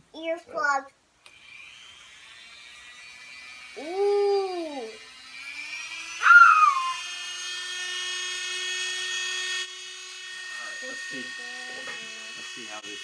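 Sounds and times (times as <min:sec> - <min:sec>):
rotary tool high whine: 0:01.2 - 0:13.0
loud falling squeal: 0:06.2 - 0:07.0.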